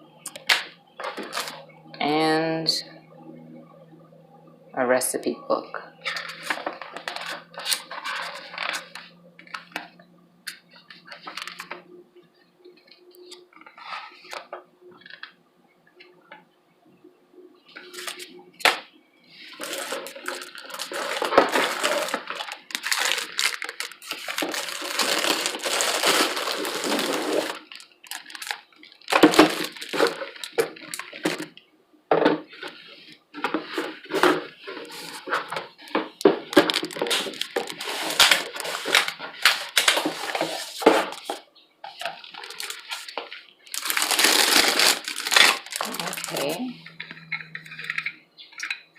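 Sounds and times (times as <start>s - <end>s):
plastic parts clattering: 0.3s - 1.6s, 6.0s - 11.9s, 17.7s - 48.9s
packaging rustling and crinkling: 0.3s - 1.7s, 6.0s - 11.8s, 17.8s - 18.8s, 19.4s - 31.6s, 32.5s - 48.8s.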